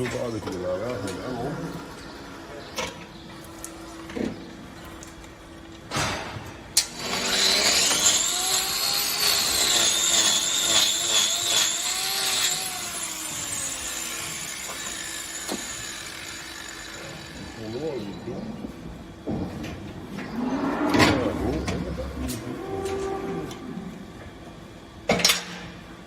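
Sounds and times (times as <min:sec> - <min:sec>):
power tool whining: 0:06.8 - 0:17.9.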